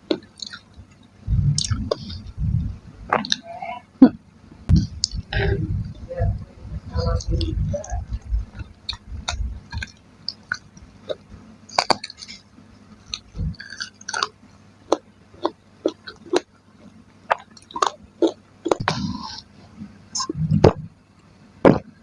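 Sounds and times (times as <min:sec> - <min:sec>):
person chewing food: 0:00.0 - 0:03.4, 0:04.7 - 0:06.0, 0:08.0 - 0:19.5.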